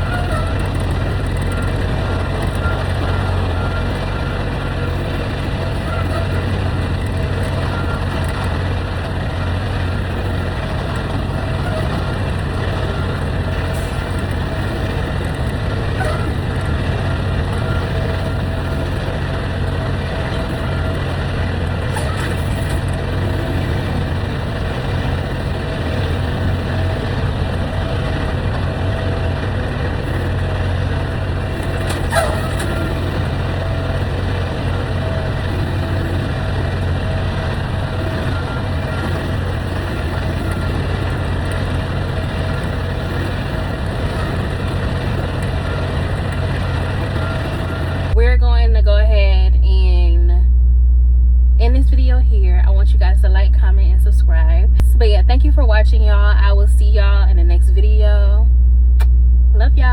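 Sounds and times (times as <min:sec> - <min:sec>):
faint steady whine: 0:00.0 - 0:59.9
truck engine droning: 0:00.0 - 0:59.9.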